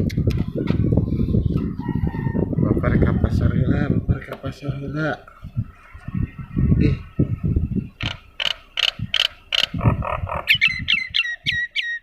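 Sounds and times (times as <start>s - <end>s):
bird harsh repeated calls: 7.9s - 12.0s.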